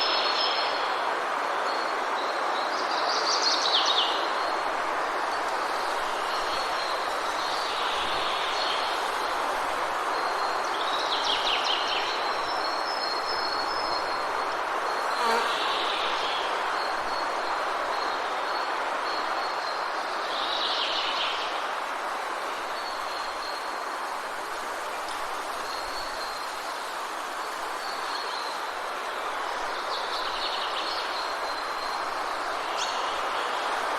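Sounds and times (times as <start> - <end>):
steady rushing hiss: 4.2 - 33.9
high insect drone: 4.3 - 20.1.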